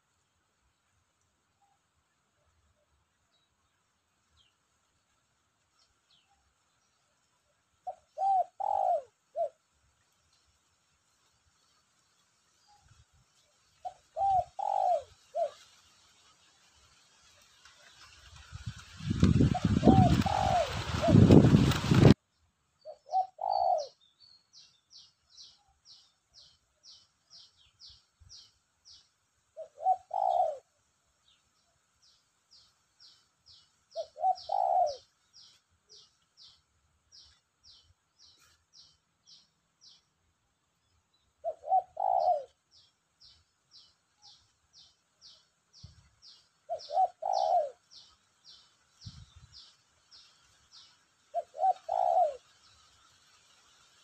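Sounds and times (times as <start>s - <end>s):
dove cooing: 7.8s - 9.6s, 13.8s - 15.6s, 19.2s - 22.2s, 22.9s - 24.0s, 29.6s - 30.8s, 33.9s - 35.1s, 41.4s - 42.9s, 46.3s - 48.6s, 51.3s - 52.6s.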